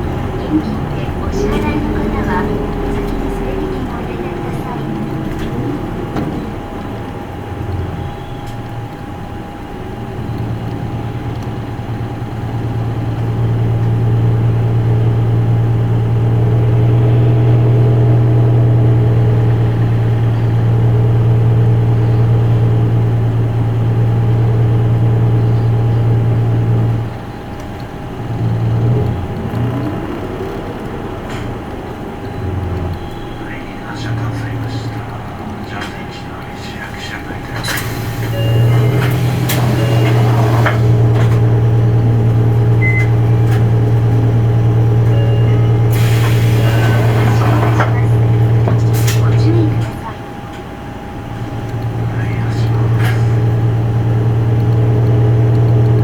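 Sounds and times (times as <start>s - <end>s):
bus diesel engine under load: 0.0s - 56.0s
thin steady whine: 31.7s - 55.3s.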